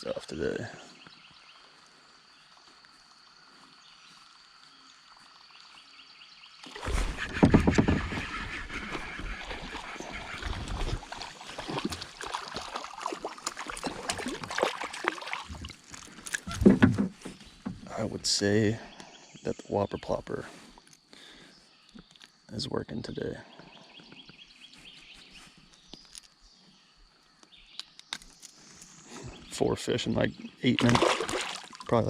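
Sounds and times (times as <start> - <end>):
water splashing against kayak: 6.6 - 17.9, 30.7 - 32.0.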